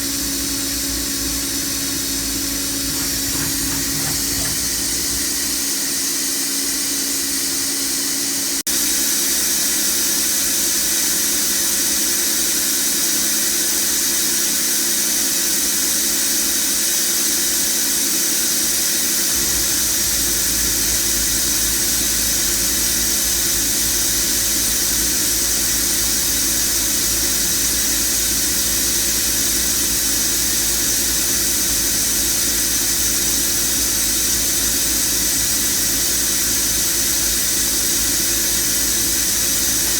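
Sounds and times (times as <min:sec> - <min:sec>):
spindle high-pitched whine: 0:00.0 - 0:06.1, 0:19.3 - 0:39.9.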